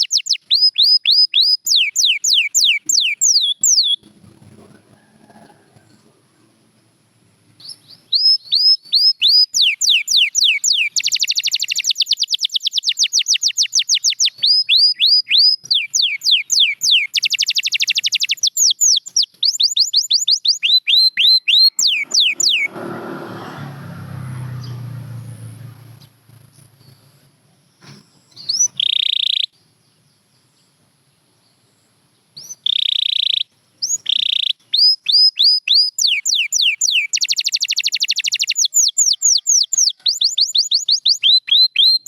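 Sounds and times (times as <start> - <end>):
canary singing: 0.0 - 6.1, 7.6 - 22.8, 27.8 - 29.6, 32.4 - 42.0
low noisy rushing sound: 21.8 - 26.2.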